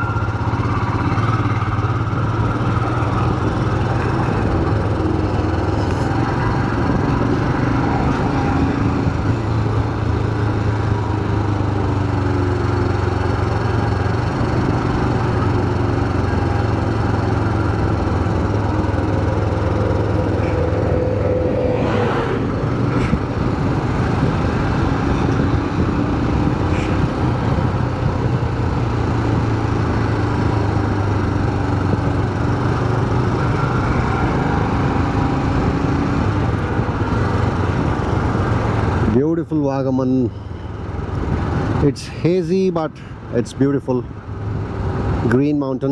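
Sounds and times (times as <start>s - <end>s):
motorcycle engine running: 0.0s - 39.3s
road noise: 0.0s - 45.9s
wind noise: 17.3s - 39.1s.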